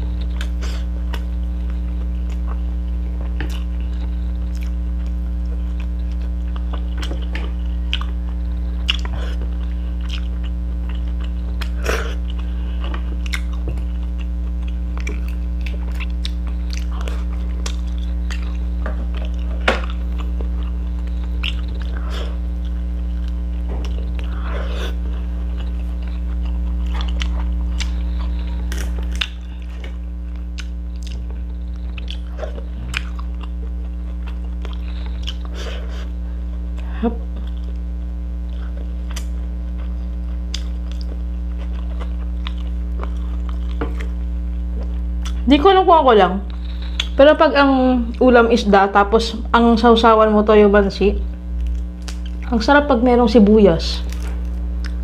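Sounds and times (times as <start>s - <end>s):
person chewing food: 0.0s - 45.5s, 46.5s - 47.2s, 51.5s - 52.5s, 54.1s - 55.0s
loud low hum: 0.0s - 55.0s.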